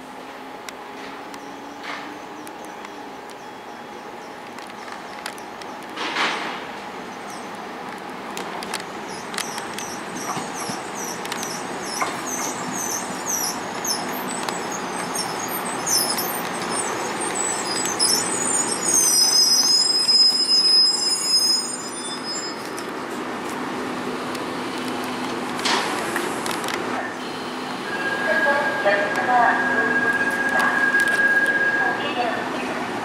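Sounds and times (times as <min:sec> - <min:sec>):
high wheel squeals: 0:09.1 - 0:22.8.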